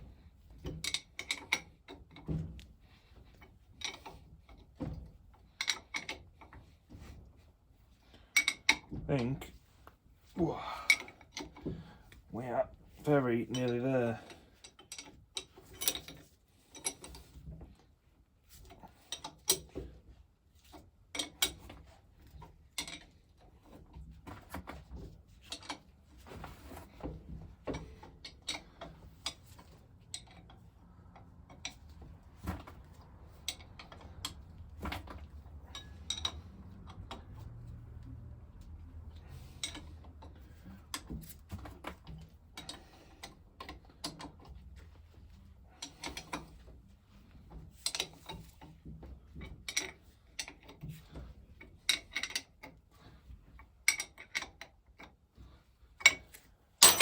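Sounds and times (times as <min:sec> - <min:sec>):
metallic clicks of tools and parts: 0:35.1 - 0:37.2, 0:56.0 - 0:57.0.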